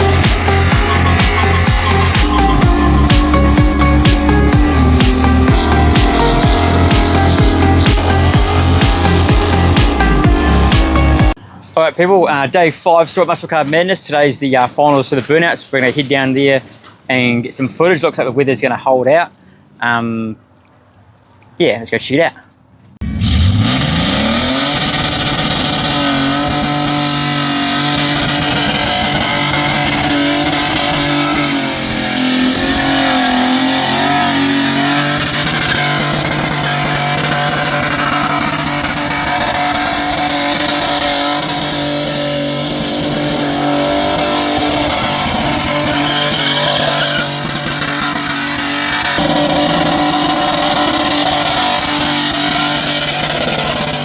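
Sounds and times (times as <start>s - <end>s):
car engine at high revs: 0.0s - 11.4s, 23.0s - 54.0s
tyres spinning and squealing: 0.0s - 11.4s, 23.0s - 54.0s.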